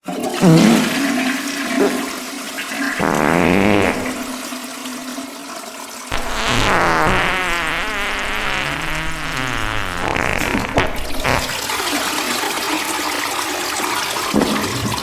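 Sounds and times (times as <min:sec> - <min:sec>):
slowed reverberant toilet flush: 0:00.0 - 0:03.0, 0:04.3 - 0:06.1, 0:11.6 - 0:15.0.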